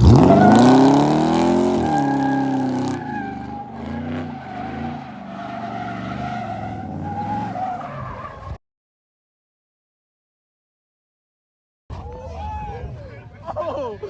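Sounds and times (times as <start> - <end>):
car engine revving: 0.0 - 7.8
tyres squealing: 0.0 - 8.6.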